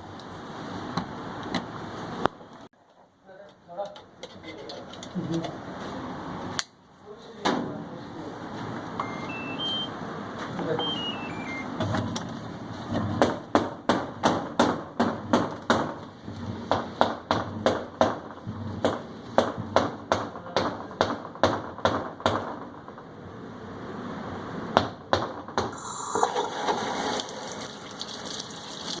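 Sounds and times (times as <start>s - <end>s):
sharp knocks: 13.0s - 23.1s, 24.8s - 25.8s.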